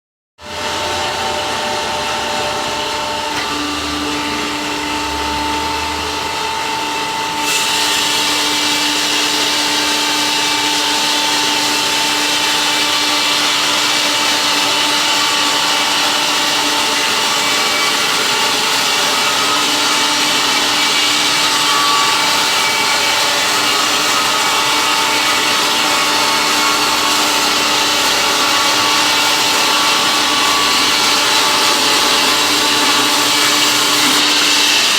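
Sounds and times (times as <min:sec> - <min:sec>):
sawmill humming: 0:00.4 - 0:34.9.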